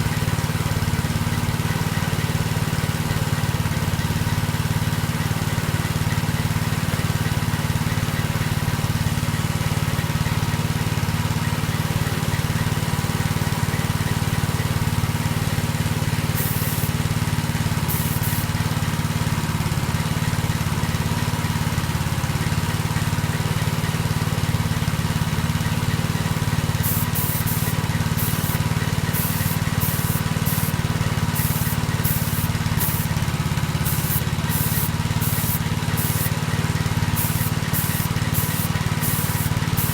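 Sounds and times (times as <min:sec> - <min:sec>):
paint spray hissing bursts: 0:16.2 - 0:18.6, 0:26.6 - 0:39.9
low machine hum: 0:26.8 - 0:39.9.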